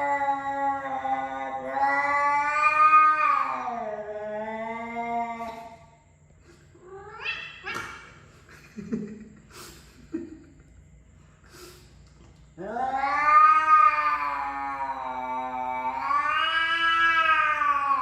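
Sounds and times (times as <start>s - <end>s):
cat yowling: 0.0s - 5.6s, 6.9s - 8.1s, 12.6s - 18.0s.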